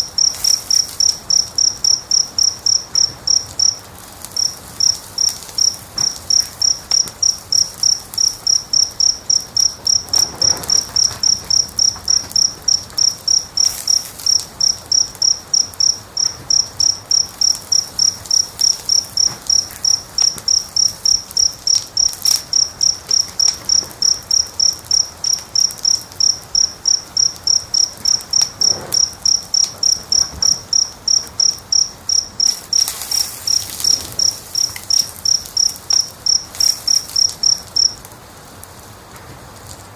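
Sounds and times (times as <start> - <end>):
insect chirping: 0.0 - 38.0
crackling fire: 0.0 - 39.9.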